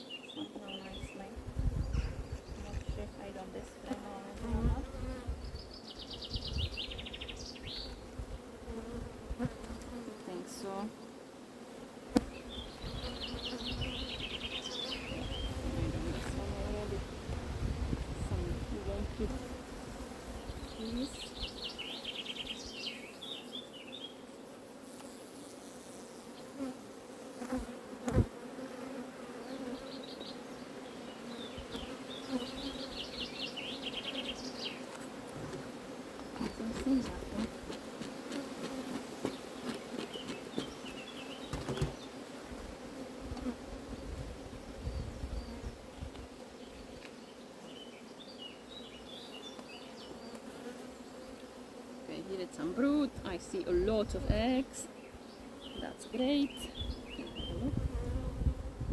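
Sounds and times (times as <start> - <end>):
bees buzzing: 0.0 - 58.9.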